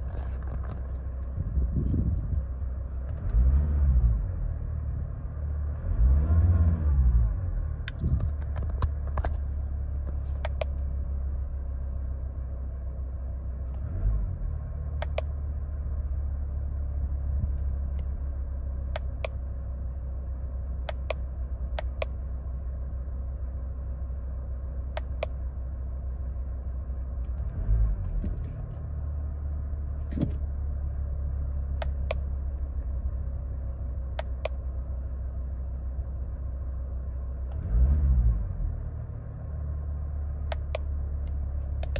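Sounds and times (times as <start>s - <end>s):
car engine running: 0.0s - 41.9s
light sharp clicks: 10.1s - 10.8s, 15.0s - 15.3s.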